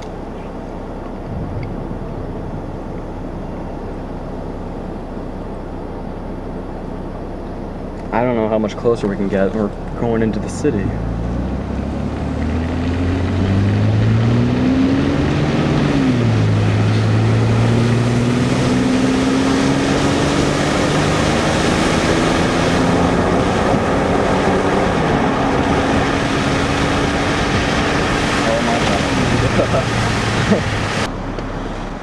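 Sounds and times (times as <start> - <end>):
road and wind noise: 0.0 - 32.0
car accelerating hard: 8.0 - 32.0.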